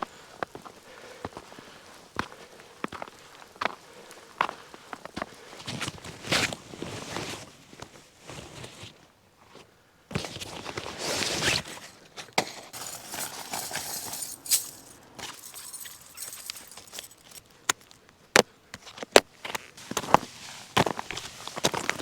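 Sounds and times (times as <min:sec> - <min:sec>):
footsteps crunching in snow: 0:12.6 - 0:17.4.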